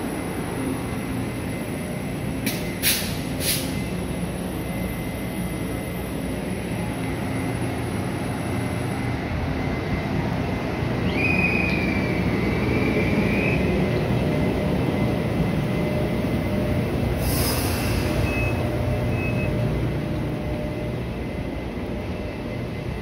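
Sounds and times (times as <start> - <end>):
short hiss of air: 2.5 - 3.8, 17.2 - 18.2.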